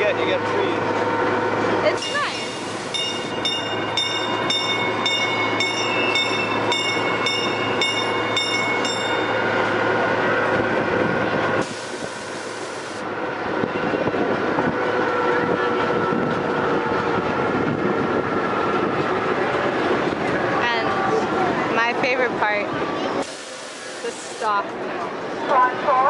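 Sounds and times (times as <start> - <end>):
bell clanging: 3.0 - 9.4.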